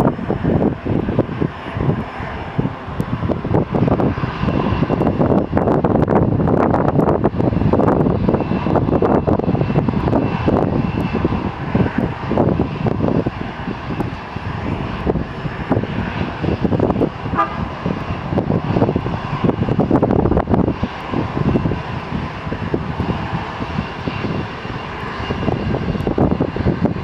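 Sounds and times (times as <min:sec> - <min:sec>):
airliner engines running: 0:00.0 - 0:27.0.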